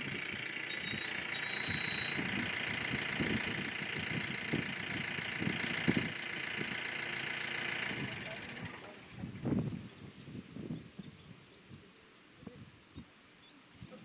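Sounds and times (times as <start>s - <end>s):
vehicle engine idling: 0.0s - 9.9s.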